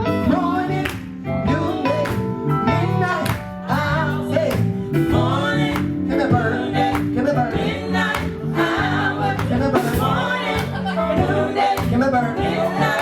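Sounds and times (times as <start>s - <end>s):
bass line: 0.0s - 13.0s
guitar: 0.0s - 13.0s
voices singing gospel: 0.0s - 13.0s
steady drum beat: 3.5s - 13.0s.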